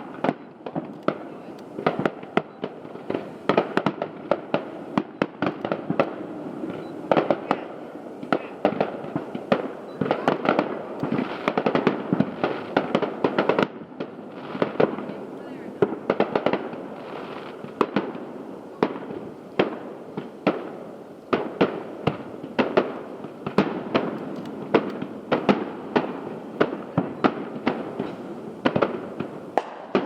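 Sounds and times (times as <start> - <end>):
fireworks booming and popping: 0.0 - 30.0.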